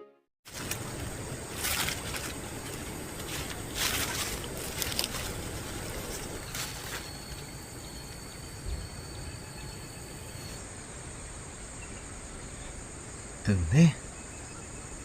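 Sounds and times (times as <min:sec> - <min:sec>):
high-pitched insect buzzing: 0:01.6 - 0:10.6.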